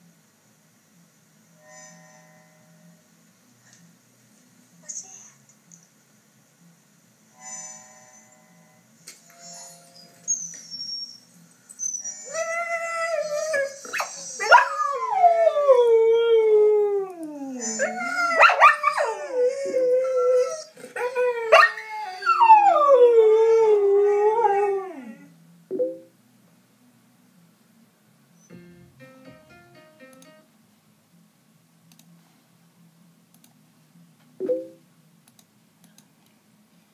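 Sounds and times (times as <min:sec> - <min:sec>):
dog howling: 0:14.4 - 0:25.3
dog yipping: 0:17.6 - 0:19.2.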